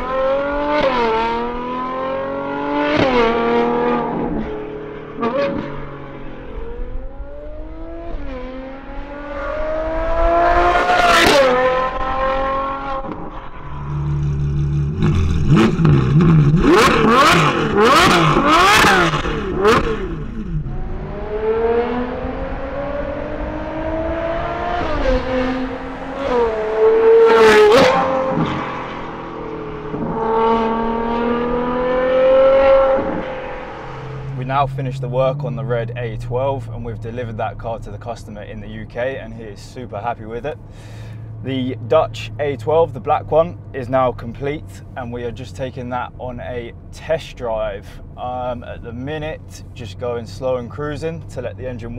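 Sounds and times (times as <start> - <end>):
sports car engine shifting gears: 0.0 - 51.9
exhaust cracks: 11.0 - 21.0.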